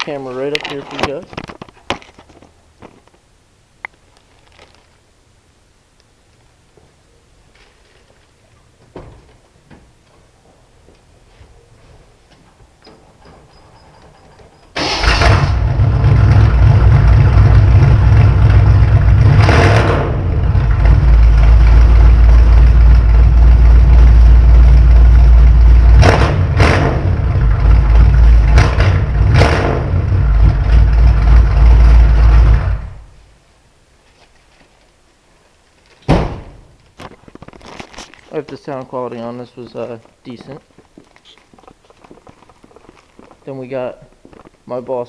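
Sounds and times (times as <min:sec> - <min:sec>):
car engine running loud: 0:15.1 - 0:33.1.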